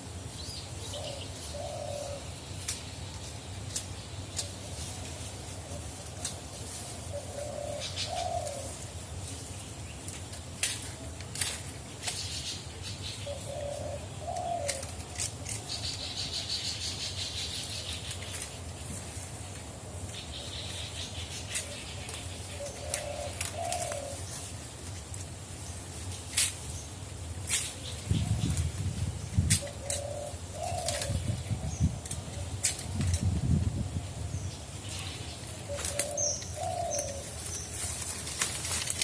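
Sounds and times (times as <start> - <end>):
dove cooing: 0.9 - 2.3, 7.0 - 8.8, 13.2 - 15.3, 21.5 - 24.4, 29.5 - 31.8, 35.5 - 38.0.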